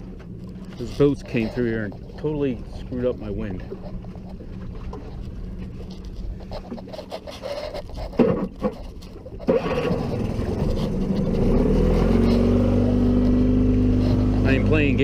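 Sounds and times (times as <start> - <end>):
gear knocking and scraping: 0.0 - 15.0
boat motor speeding up: 8.2 - 15.0.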